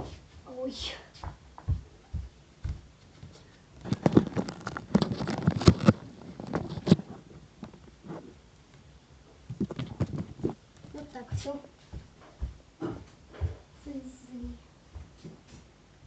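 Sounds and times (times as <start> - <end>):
handling knocks and scrapes: 3.2 - 8.4, 9.5 - 13.7.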